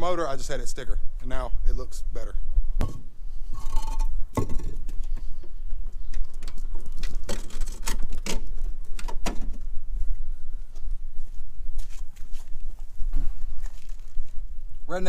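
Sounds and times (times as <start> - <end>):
knocks and clicks of objects handled: 2.8 - 9.7.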